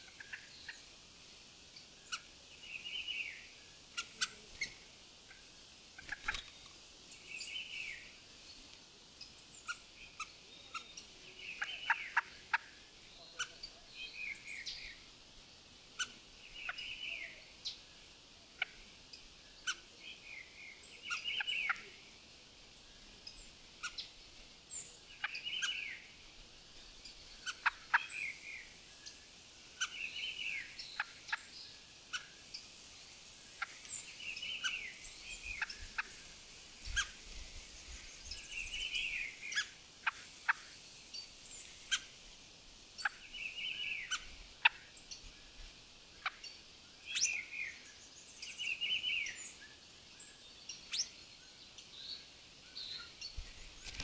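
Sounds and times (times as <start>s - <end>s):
steady high hiss: 0.0s - 54.0s
wild birds singing: 0.0s - 54.0s
sharp bird clicks and chips: 6.0s - 7.8s, 53.8s - 54.0s.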